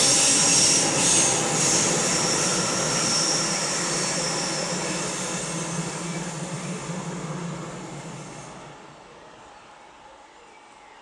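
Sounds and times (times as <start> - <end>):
high wheel squeal: 0.0 - 7.1
high-speed train rolling away: 0.0 - 10.1.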